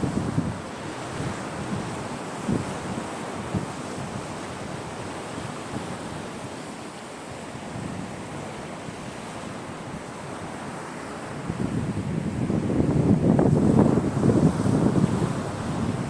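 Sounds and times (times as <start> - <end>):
wind buffeting microphone: 0.0 - 6.4, 10.0 - 16.0
sea waves breaking on beach: 0.0 - 16.0.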